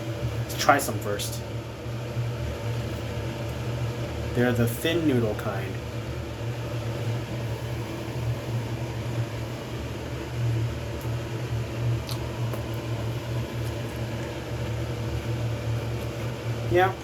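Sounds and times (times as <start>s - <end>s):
fan humming: 0.0s - 17.0s.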